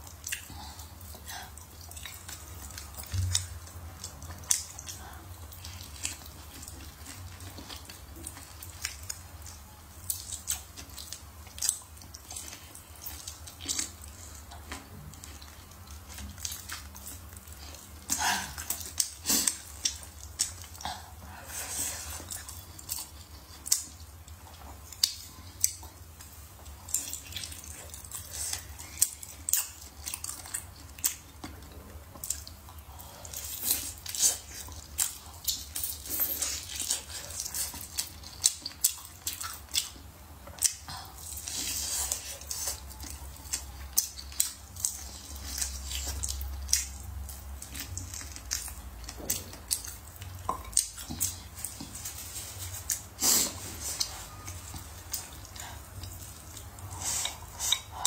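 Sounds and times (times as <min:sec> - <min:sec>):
biting and chewing meat: 0:00.0 - 0:58.0.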